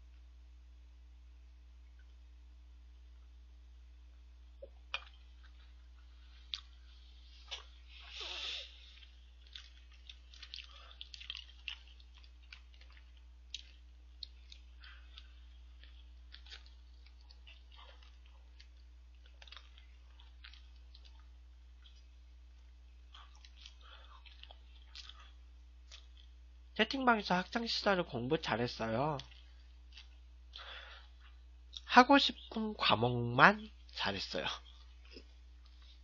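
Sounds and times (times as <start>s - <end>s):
wet mouth clicks: 4.6s - 5.2s
chewing and biting: 4.6s - 26.4s, 29.2s - 31.8s.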